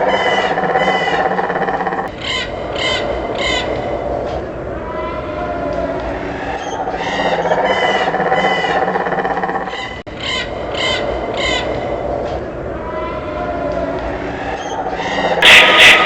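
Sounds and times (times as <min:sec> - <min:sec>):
steady background noise: 0:00.0 - 0:16.0
short bird calls: 0:14.6 - 0:16.0.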